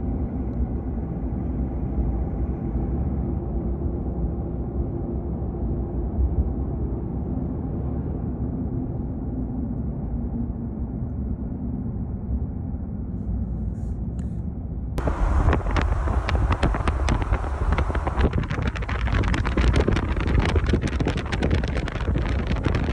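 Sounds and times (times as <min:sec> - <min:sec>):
car road noise rumble: 0:15.0 - 0:22.9
quick crackles: 0:15.0 - 0:22.9.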